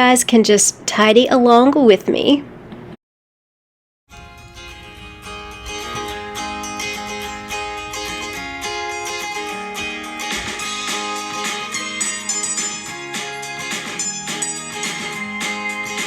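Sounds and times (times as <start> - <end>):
acoustic guitar plucked and strummed: 4.1 - 16.0.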